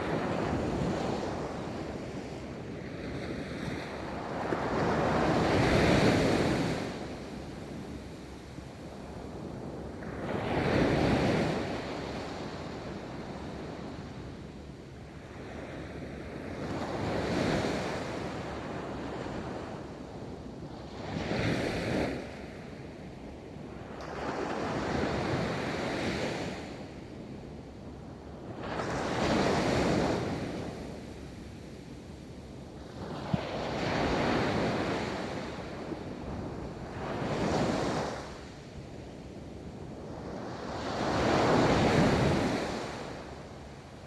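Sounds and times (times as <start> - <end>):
ocean waves on a beach: 32.7 - 44.0.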